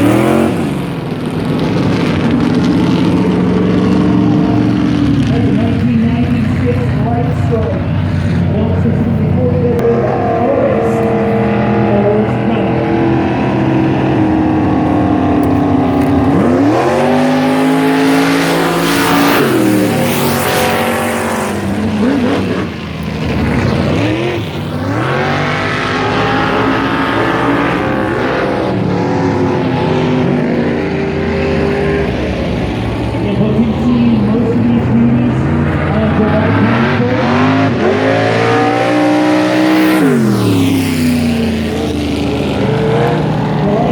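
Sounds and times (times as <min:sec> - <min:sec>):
vehicle engine revving hard: 0:00.0 - 0:43.9.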